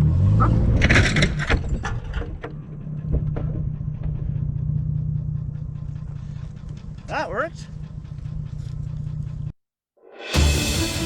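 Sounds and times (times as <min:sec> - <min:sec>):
car engine idling: 0:02.0 - 0:09.6.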